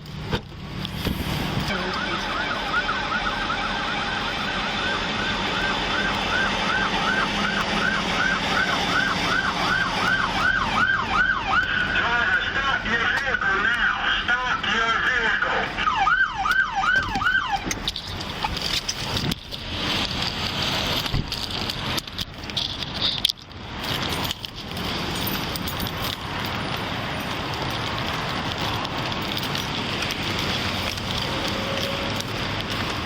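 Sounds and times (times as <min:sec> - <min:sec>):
emergency siren yelping: 0:01.4 - 0:18.2
steady rushing noise: 0:17.1 - 0:33.0.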